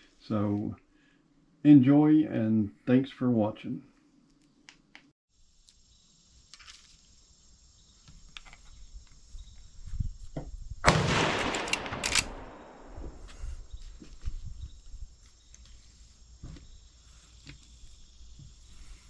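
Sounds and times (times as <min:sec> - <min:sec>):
gunshot: 0:10.8 - 0:13.2.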